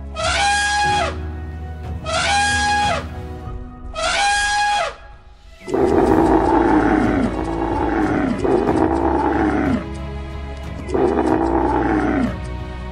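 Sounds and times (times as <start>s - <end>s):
large animal roaring: 5.7s - 9.9s, 10.8s - 12.4s.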